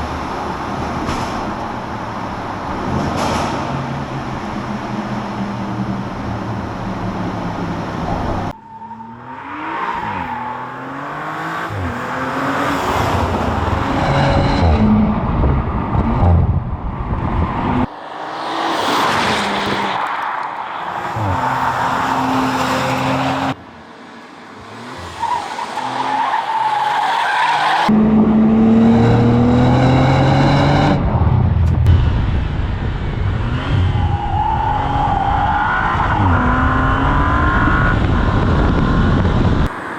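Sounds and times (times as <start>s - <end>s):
sports car engine accelerating: 27.9s - 32.1s.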